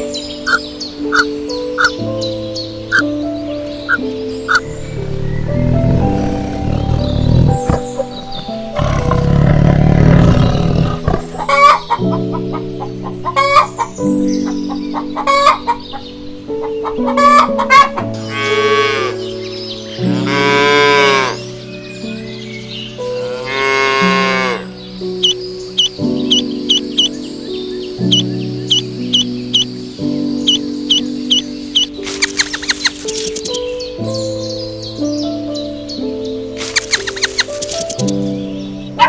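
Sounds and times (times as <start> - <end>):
soft background music: 0.0 - 39.0
chickens clucking: 0.5 - 2.0, 11.0 - 16.0, 16.6 - 18.1, 25.2 - 27.1, 28.0 - 29.7, 30.5 - 33.6, 36.6 - 38.2.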